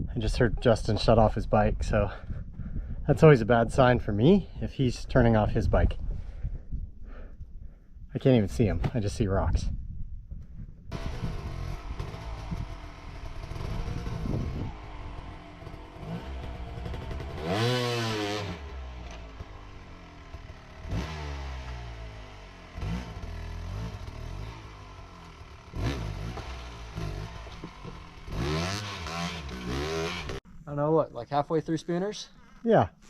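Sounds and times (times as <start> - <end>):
dirt bike engine revving: 10.9 - 30.6.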